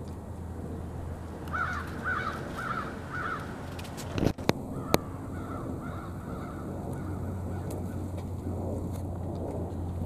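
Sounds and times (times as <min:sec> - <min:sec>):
bird calling: 0:01.5 - 0:03.9, 0:04.8 - 0:08.2.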